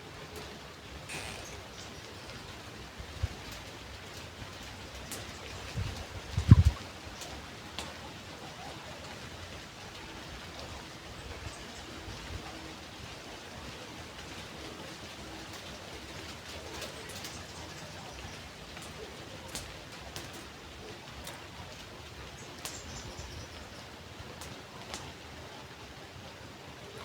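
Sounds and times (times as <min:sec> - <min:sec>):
water-like hiss: 0:01.1 - 0:02.0
light ticks: 0:03.2 - 0:08.1, 0:15.5 - 0:20.6, 0:22.6 - 0:23.3, 0:24.4 - 0:25.2.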